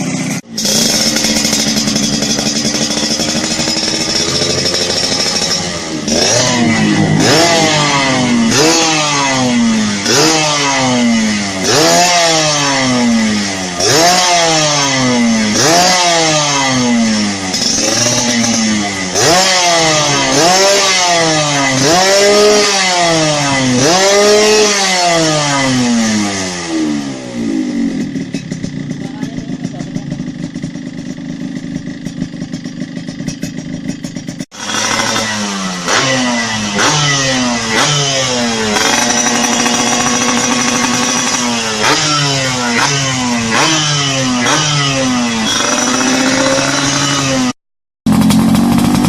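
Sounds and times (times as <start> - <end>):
two-stroke motorcycle engine revving: 0.0 - 49.0.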